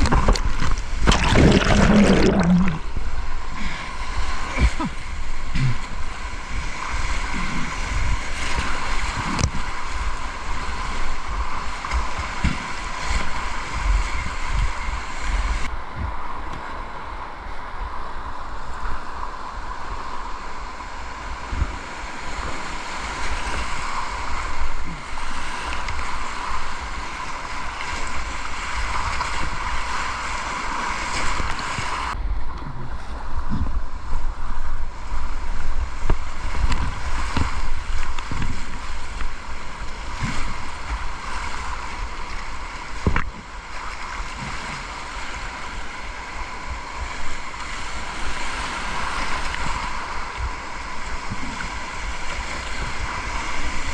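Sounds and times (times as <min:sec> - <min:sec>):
wind buffeting microphone: 0:00.0 - 0:03.4
rushing river water: 0:00.0 - 0:53.9.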